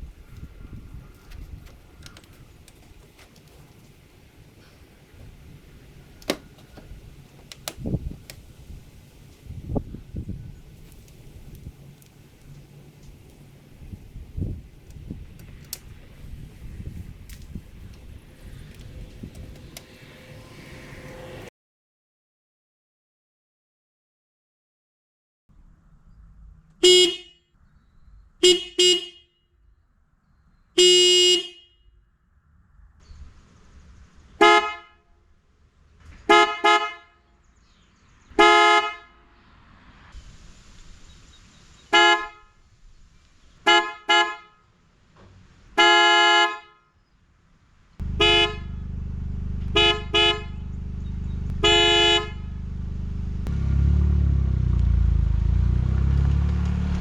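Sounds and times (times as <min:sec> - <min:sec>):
car engine idling: 0:00.0 - 0:21.5, 0:48.0 - 0:57.0
car horn honking: 0:26.8 - 0:27.4, 0:28.4 - 0:29.4, 0:30.8 - 0:31.8, 0:34.4 - 0:35.0, 0:36.3 - 0:37.2, 0:38.4 - 0:39.2, 0:41.9 - 0:42.6, 0:43.7 - 0:44.6, 0:45.8 - 0:46.8, 0:48.0 - 0:53.3
twin-tone bass horn: 0:48.0 - 0:57.0.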